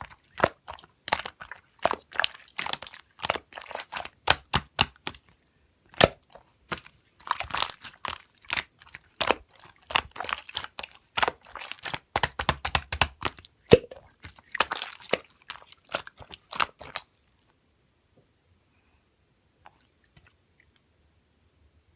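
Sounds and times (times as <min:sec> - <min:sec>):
slime squeezed by hand: 0:00.0 - 0:17.1.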